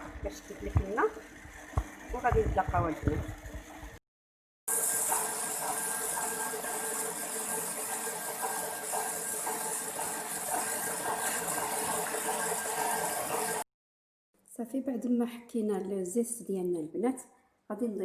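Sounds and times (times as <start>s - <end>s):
stand mixer motor whine: 4.7s - 13.7s.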